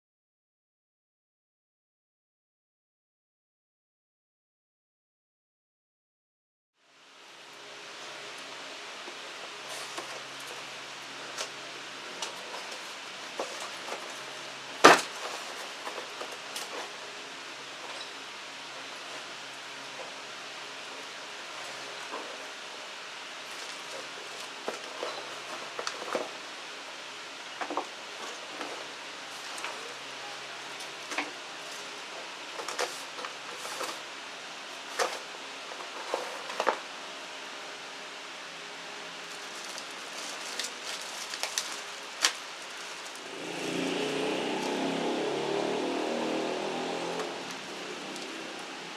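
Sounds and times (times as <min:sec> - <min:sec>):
steady background hiss: 0:06.8 - 0:48.9
clicks knocks and packaging rustles: 0:14.8 - 0:16.9, 0:39.4 - 0:43.2.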